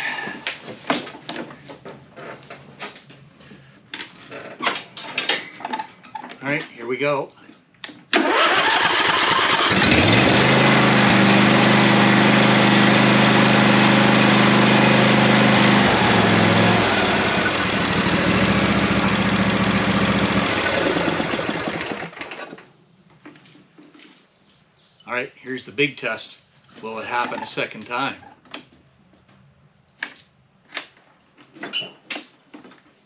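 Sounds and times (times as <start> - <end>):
lawn tractor engine starting and running: 8.1 - 22.6.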